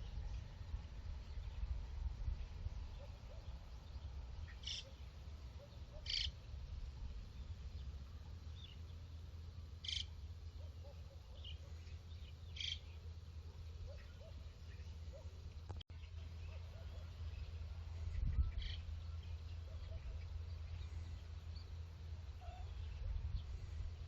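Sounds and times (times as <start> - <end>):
fainter lower bird calls: 2.9 - 6.4, 9.8 - 21.8, 22.4 - 23.9.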